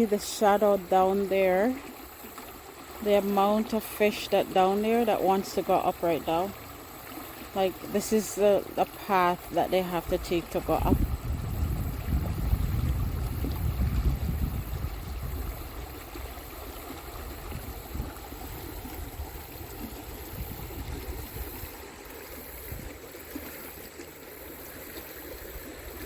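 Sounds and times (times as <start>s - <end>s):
stream water rushing over rocks: 0.0s - 26.0s
low rumble on microphone: 10.0s - 21.8s.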